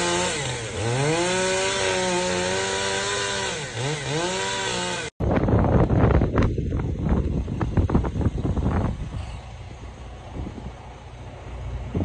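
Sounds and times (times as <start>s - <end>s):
engine revving: 0.0s - 5.2s.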